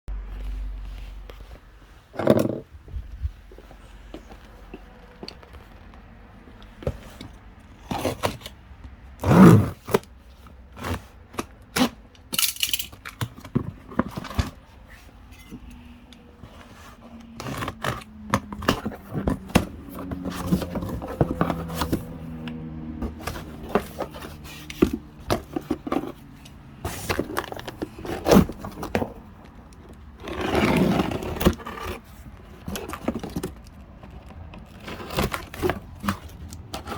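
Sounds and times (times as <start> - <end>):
hard objects knocking and scraping: 2.1 - 3.0, 16.5 - 22.4, 23.0 - 36.9.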